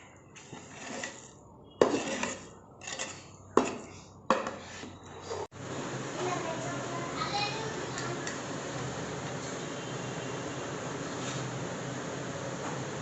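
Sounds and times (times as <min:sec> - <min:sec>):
metal utensil scraping a pot: 0:00.6 - 0:05.0.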